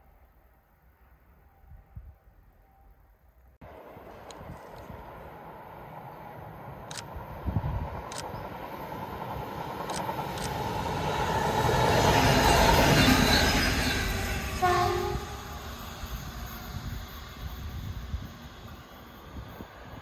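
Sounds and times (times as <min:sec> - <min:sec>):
train rumble passing: 0:03.6 - 0:20.0
train horn blast: 0:14.5 - 0:15.6.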